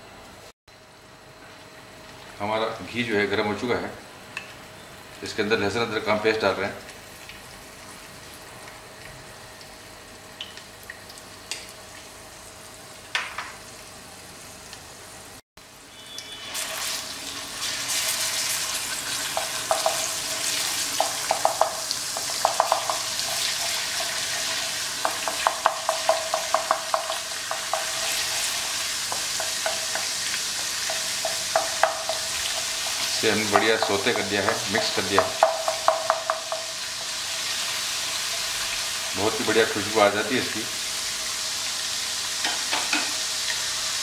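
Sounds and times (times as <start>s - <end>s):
paste sizzling in a pan: 15.2s - 44.0s
spatula scraping and knocking pan: 21.0s - 24.2s, 25.0s - 37.2s.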